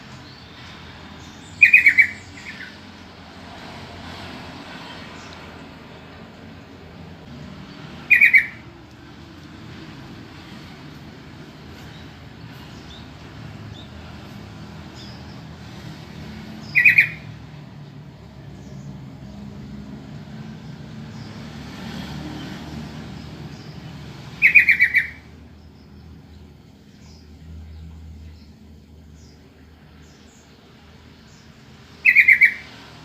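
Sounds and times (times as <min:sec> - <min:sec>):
bird calling quick repeated notes: 0:08.1 - 0:08.6, 0:16.7 - 0:17.2, 0:24.4 - 0:25.2, 0:32.0 - 0:32.6.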